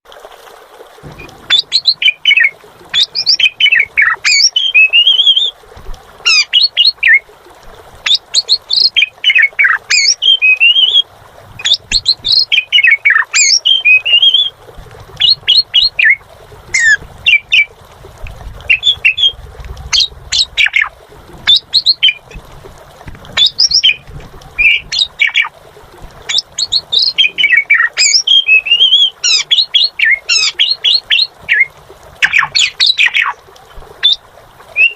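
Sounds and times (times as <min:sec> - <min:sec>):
starling singing: 0:01.5 - 0:05.5, 0:08.1 - 0:14.5, 0:15.2 - 0:17.8, 0:18.7 - 0:22.4, 0:23.4 - 0:25.5, 0:26.2 - 0:33.4.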